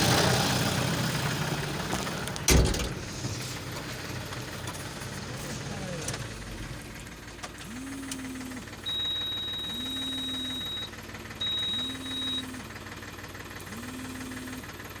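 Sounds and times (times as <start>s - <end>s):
diesel engine running: 0.0s - 15.0s
high steady beep: 7.7s - 12.7s.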